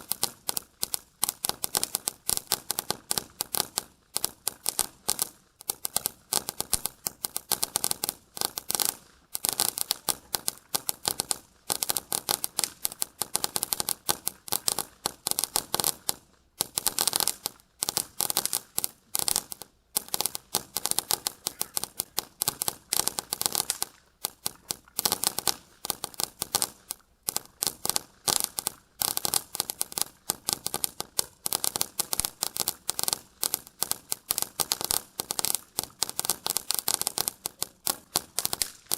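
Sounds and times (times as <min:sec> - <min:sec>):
firework crackling pops: 0:00.0 - 0:38.9.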